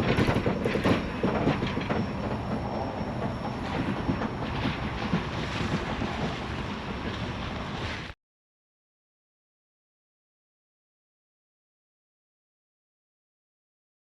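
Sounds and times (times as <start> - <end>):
train wheel clicks: 0.0 - 7.7
train cars rolling on rails: 0.0 - 8.2.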